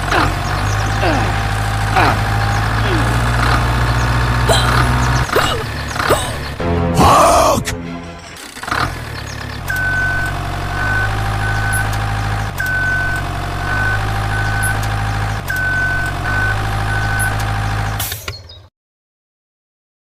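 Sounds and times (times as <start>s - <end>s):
toy engine rumble: 0.0s - 18.6s
warning beeps: 9.7s - 17.5s.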